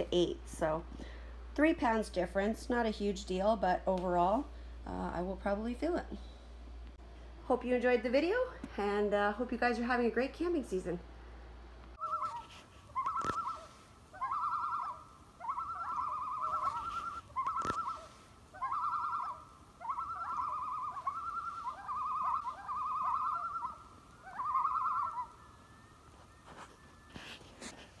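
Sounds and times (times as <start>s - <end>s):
bird calling quavering phrases: 12.0s - 28.0s.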